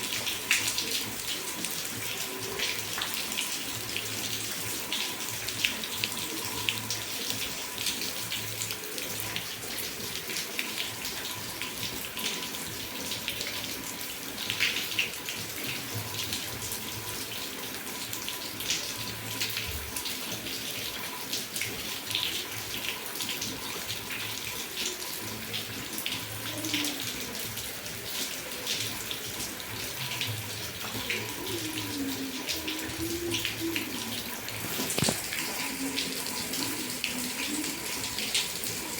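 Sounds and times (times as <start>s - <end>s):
running water: 0.0s - 38.9s
heavy rain falling: 25.1s - 38.9s.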